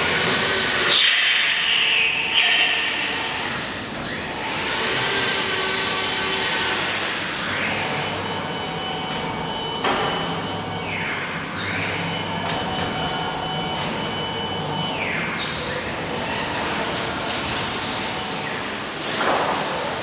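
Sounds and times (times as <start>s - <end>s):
wood router spindle whine: 2.9s - 10.5s.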